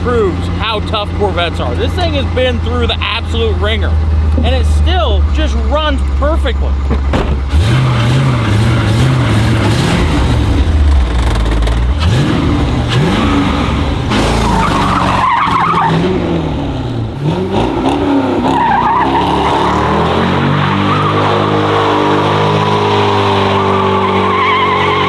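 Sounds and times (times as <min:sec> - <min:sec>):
car engine revving: 0:00.0 - 0:25.0
tyres squealing: 0:12.9 - 0:16.0, 0:18.1 - 0:25.0.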